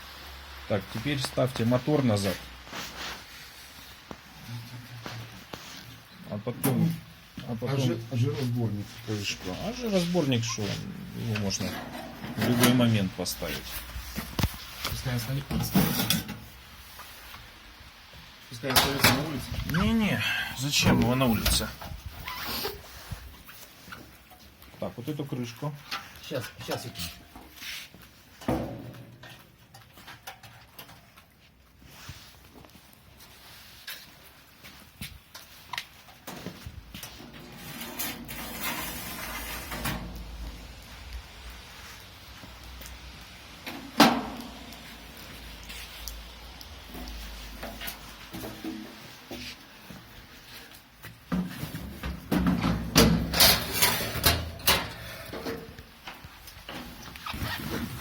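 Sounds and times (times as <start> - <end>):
grill parts knocking and clanking: 15.5 - 16.5, 28.4 - 31.0, 43.6 - 44.6, 51.3 - 57.0.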